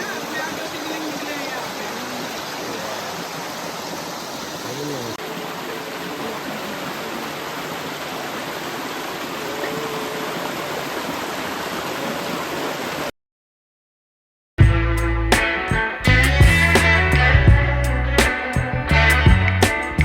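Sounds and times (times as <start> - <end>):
stream water rushing: 0.0 - 13.1.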